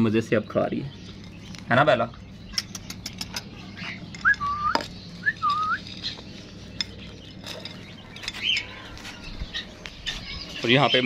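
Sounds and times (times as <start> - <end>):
faint bird chirps: 0.0 - 11.0
sharp clicks and taps: 2.5 - 3.5
whistled bird calls: 2.5 - 6.8.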